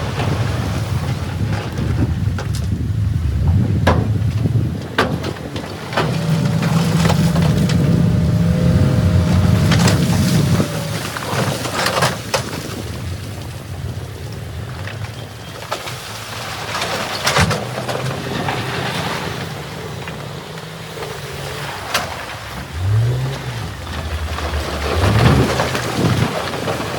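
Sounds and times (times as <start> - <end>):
heavy machine engine running: 0.1 - 14.7, 16.3 - 26.9
metal clanks and knocks: 3.5 - 12.4.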